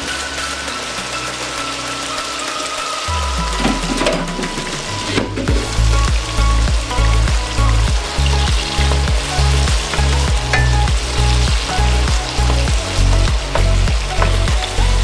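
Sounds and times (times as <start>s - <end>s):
fish frying sizzle: 0.0s - 15.0s
background music with bass beat: 3.1s - 15.0s.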